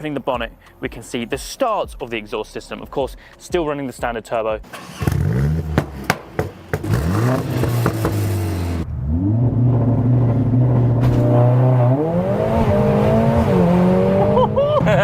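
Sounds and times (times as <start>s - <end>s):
exhaust popping crackles: 4.7s - 11.5s
car engine revving: 4.7s - 15.0s.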